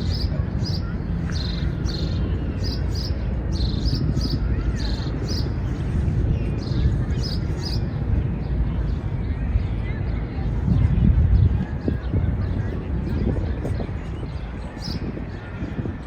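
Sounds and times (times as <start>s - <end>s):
small birds chirping: 0.0s - 8.2s
low city park rumble: 0.0s - 16.0s.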